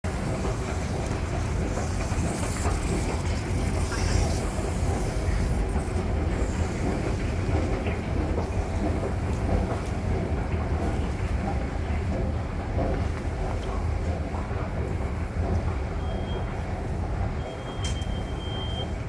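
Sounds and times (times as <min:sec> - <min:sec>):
rail clatter: 0:00.0 - 0:19.0
subway train rumble: 0:00.0 - 0:19.0
hiss: 0:00.4 - 0:07.1.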